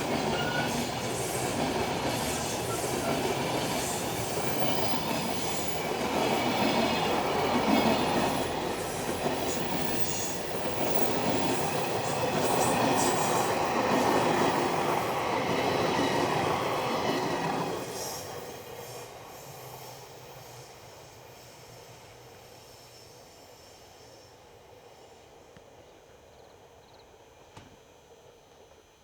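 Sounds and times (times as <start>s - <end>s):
freight train wheels rumbling: 0.0s - 23.0s
train wheel squeal: 0.0s - 25.5s.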